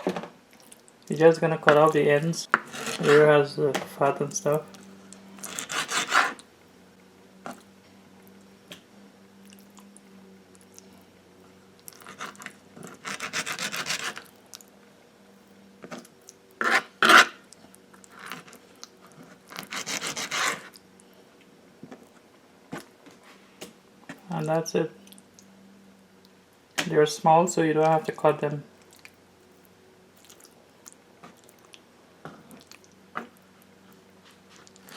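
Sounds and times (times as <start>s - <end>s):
faint steady hum: 0.0s - 34.9s
knife sawing on cutting board: 2.5s - 3.3s, 5.4s - 6.4s, 13.0s - 14.2s, 16.6s - 17.4s, 19.6s - 20.7s.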